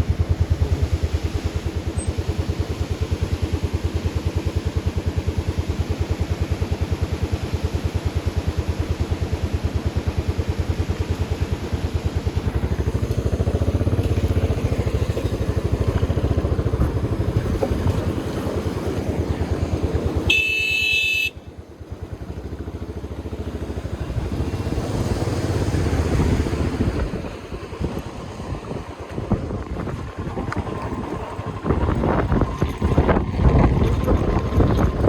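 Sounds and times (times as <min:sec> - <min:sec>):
vehicle engine running: 0:00.0 - 0:35.0
horn sounding: 0:20.3 - 0:21.5.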